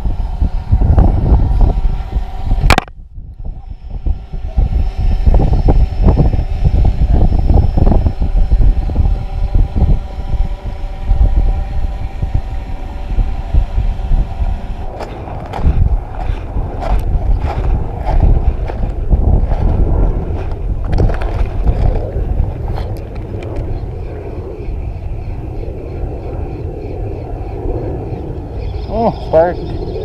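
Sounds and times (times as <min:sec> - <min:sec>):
engine hum: 0:00.0 - 0:30.0
wind buffeting microphone: 0:00.0 - 0:30.0.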